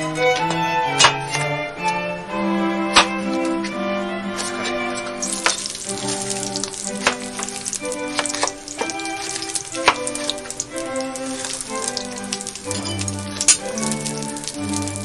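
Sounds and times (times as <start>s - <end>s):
string music: 0.0s - 15.0s
eggplant sizzling in hot oil: 4.4s - 15.0s.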